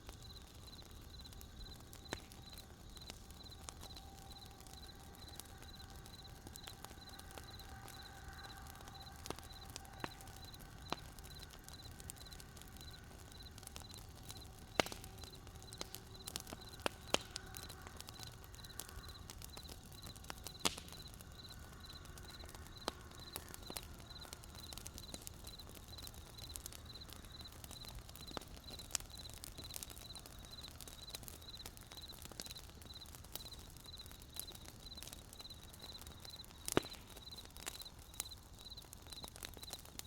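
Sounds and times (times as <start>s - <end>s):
campfire crackling: 0.0s - 40.0s
crickets chirping: 0.2s - 39.8s.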